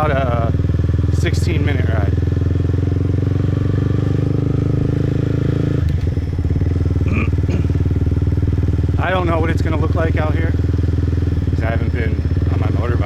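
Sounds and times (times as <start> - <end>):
motorbike engine running: 0.0 - 13.0.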